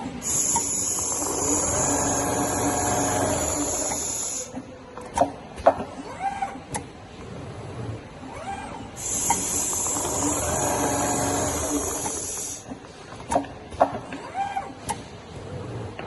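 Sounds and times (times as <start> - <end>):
sewing machine motor whine: 0.2 - 4.5, 8.4 - 12.6
short motor whirs: 0.3 - 4.5, 8.3 - 12.6.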